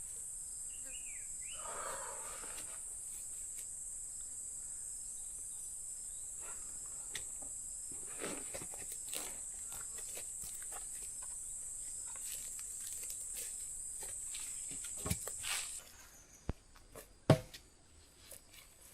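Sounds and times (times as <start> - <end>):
crickets droning: 0.0 - 18.9
rustling and light knocks: 7.1 - 15.9.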